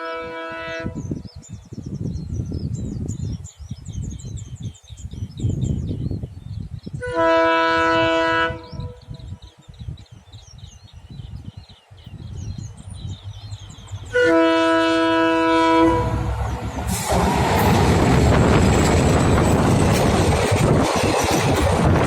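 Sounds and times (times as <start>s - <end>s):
locomotive horn blasts: 0.0s - 1.0s, 7.0s - 9.2s, 14.1s - 17.1s
birds chirping: 0.0s - 22.0s
train rumbling: 12.7s - 22.0s.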